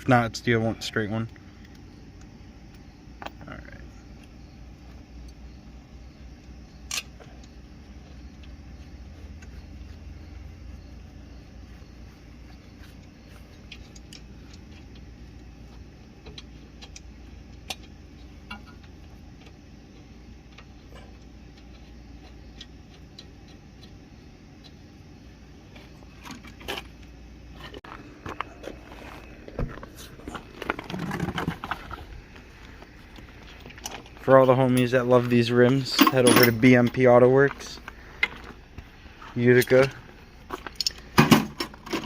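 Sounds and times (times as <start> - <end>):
metal tools clinking: 33.6 - 38.4.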